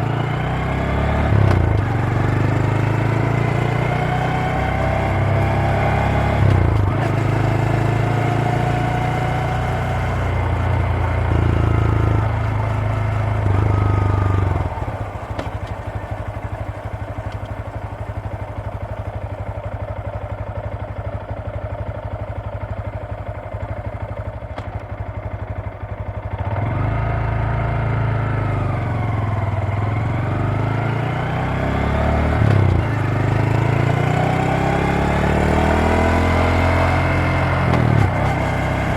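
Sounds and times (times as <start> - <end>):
motorcycle engine idling: 0.0 - 30.8
motorcycle engine revving: 0.0 - 38.9.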